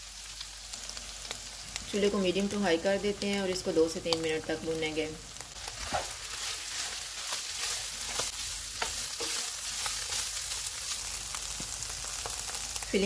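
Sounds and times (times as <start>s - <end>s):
meat sizzling in a frying pan: 0.0s - 13.0s
spatula scraping a pan: 5.6s - 11.5s.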